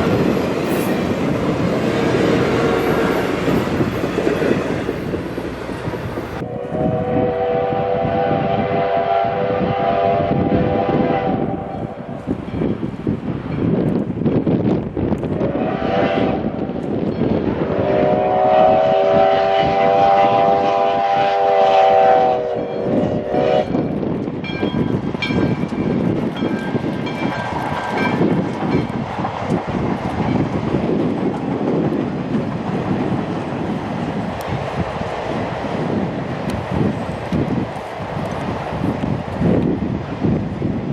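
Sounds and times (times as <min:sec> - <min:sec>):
train rumbling past: 0:00.0 - 0:40.9
locomotive whistle blasts: 0:06.4 - 0:12.0, 0:15.5 - 0:16.6, 0:17.7 - 0:23.8.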